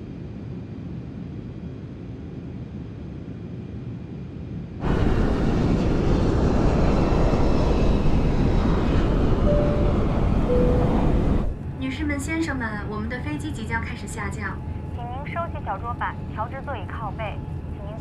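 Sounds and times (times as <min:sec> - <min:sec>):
jet airliner hum: 0:00.0 - 0:18.0
loud jet engine rush: 0:04.8 - 0:12.2.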